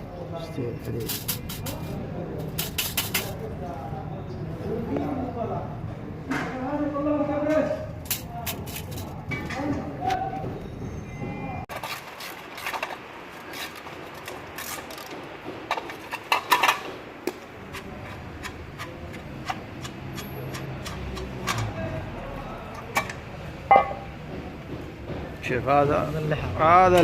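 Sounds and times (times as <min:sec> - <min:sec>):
sharp clicks and knocks: 0:11.7 - 0:21.9, 0:22.6 - 0:25.6.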